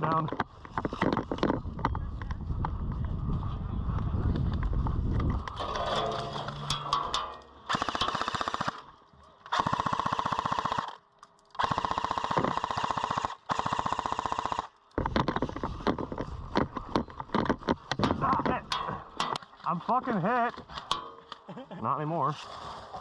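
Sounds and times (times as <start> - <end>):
airsoft gun firing bursts: 7.7 - 8.8, 9.5 - 11.0, 11.6 - 14.8.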